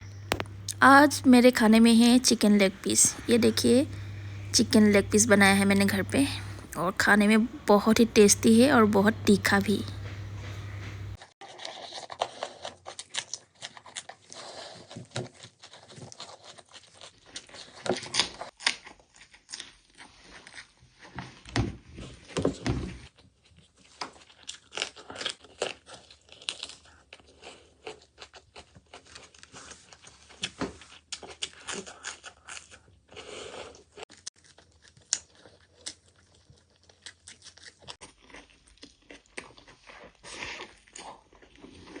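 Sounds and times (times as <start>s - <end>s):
person crunching and chewing: 0.1s - 0.8s, 9.8s - 20.7s, 23.8s - 42.0s.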